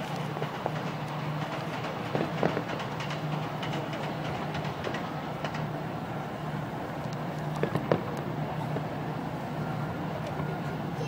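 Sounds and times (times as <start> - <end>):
distant fireworks bursting: 1.9 - 5.5, 7.5 - 9.0.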